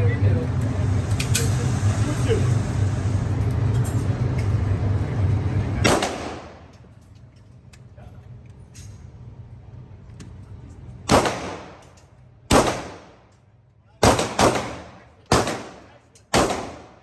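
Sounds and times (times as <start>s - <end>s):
loud rumble with low hum: 0.0s - 17.0s
loud gunshot with echo: 5.8s - 6.6s, 11.1s - 11.8s, 12.5s - 13.1s, 14.0s - 15.8s, 16.4s - 17.0s
sharp crack: 5.8s - 6.7s, 14.0s - 17.0s.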